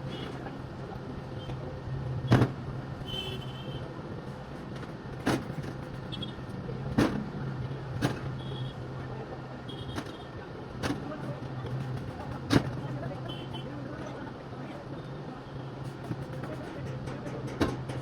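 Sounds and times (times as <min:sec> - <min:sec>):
sharp knocks: 0:16.1 - 0:18.0.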